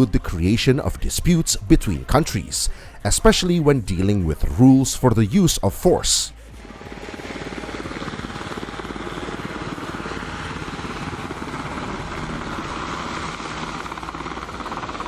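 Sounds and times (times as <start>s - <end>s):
pulsing engine noise: 6.3s - 15.0s.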